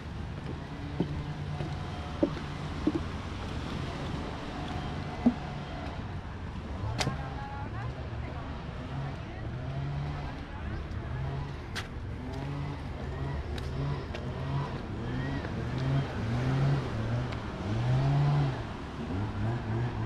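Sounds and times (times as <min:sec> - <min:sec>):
street noise: 0:00.0 - 0:20.0
car engine revving: 0:08.8 - 0:20.0.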